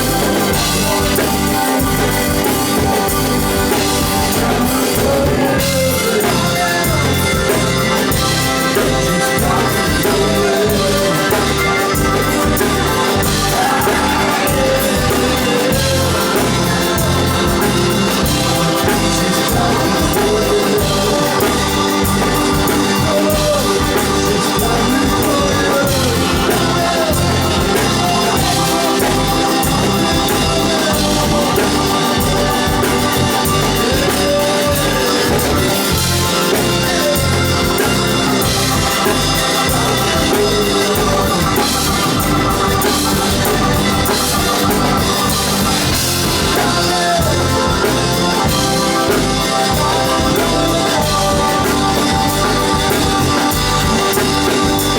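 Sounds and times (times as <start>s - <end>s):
blues-rock band playing live: 0.0s - 54.9s
drums: 0.0s - 54.9s
organ: 0.0s - 54.9s.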